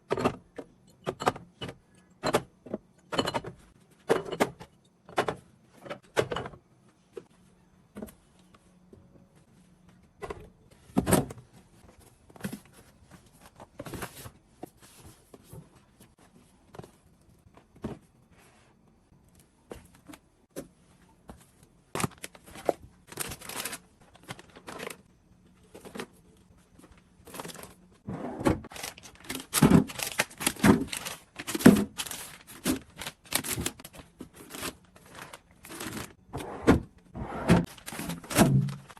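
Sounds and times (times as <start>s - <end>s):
items knocked and set down: 0.0s - 7.3s
packaging rustling and tearing: 22.0s - 25.0s, 28.7s - 36.2s, 37.6s - 38.9s.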